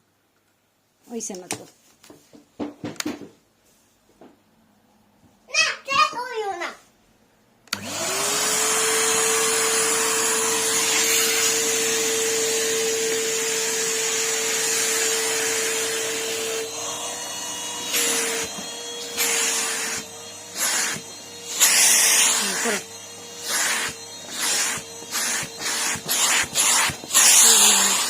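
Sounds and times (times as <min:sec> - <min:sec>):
vacuum cleaner running: 0:07.7 - 0:28.0.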